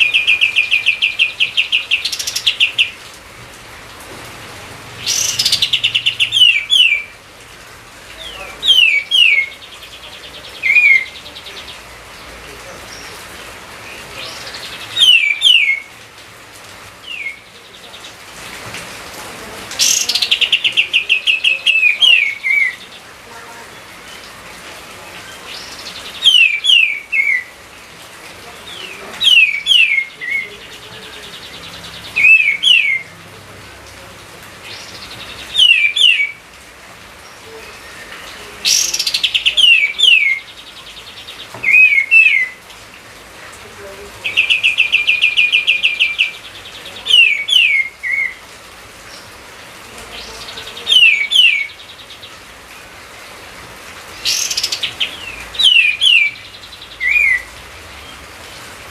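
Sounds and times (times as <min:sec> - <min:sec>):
songbird whistling: 0:15.0 - 0:15.9, 0:35.5 - 0:36.4, 0:57.0 - 0:57.5.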